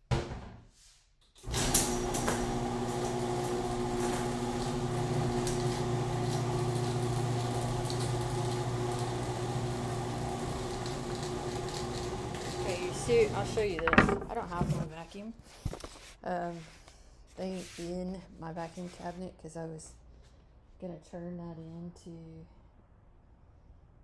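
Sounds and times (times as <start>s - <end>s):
garage door motor hum: 1.4s - 14.9s.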